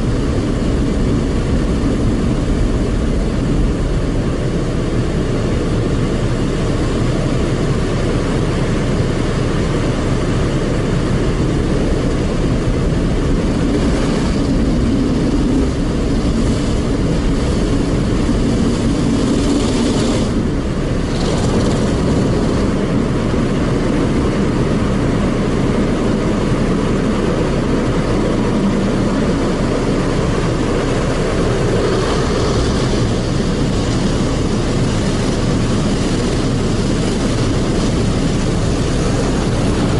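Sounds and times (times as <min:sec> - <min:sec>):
car wash machine noise: 0:00.0 - 0:39.9
higher hiss: 0:10.2 - 0:39.9.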